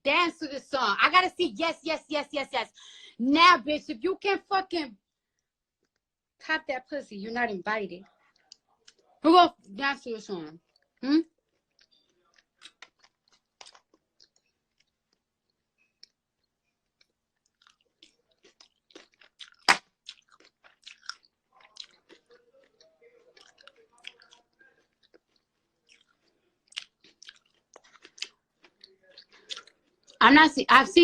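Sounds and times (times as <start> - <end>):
chewing and crunching food: 8.0 - 9.2, 10.5 - 30.2
wet mouth clicks: 17.0 - 30.2.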